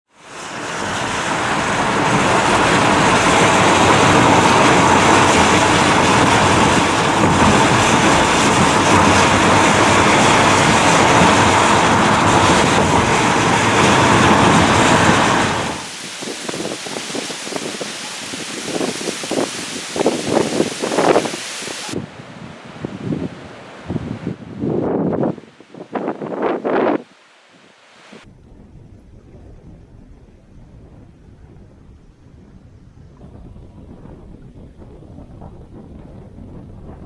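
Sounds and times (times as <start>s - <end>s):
driving rain: 0.2s - 22.0s
storm wind: 0.2s - 27.1s, 28.2s - 37.0s.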